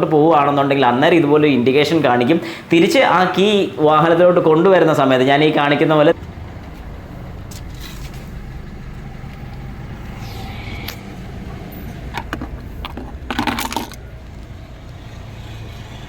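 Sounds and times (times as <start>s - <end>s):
car engine idling: 6.2s - 15.2s.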